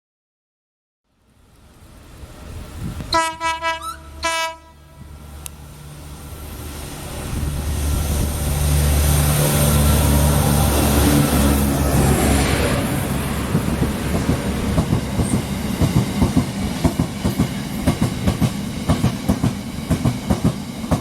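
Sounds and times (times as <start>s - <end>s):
freight train rumbling: 1.4s - 21.0s
train horn short notes: 3.1s - 5.1s.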